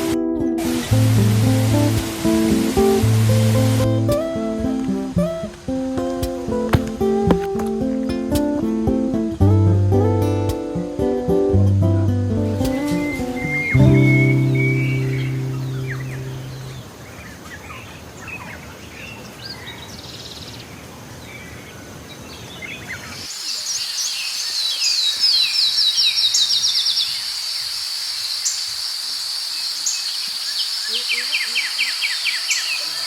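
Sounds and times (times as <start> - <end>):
guitar chord: 9.5 - 16.7
birds chirping: 12.7 - 33.0
high insect drone: 23.3 - 33.0.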